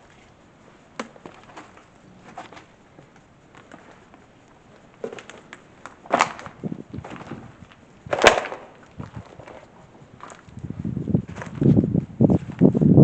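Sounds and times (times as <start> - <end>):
sharp knocks and cracks: 1.0 - 1.8, 5.0 - 7.4, 8.1 - 9.7.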